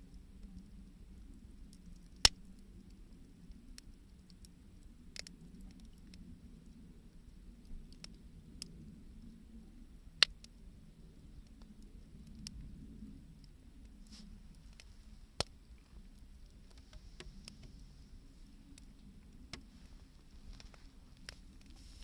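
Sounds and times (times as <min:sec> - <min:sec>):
wood fire crackling: 0:00.1 - 0:22.0.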